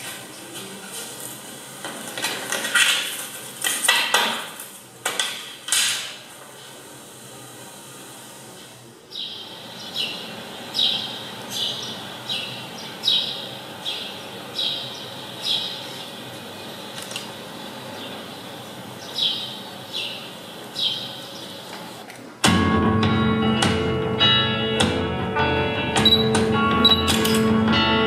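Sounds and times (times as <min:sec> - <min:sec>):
bird chirping: 0:09.1 - 0:22.0.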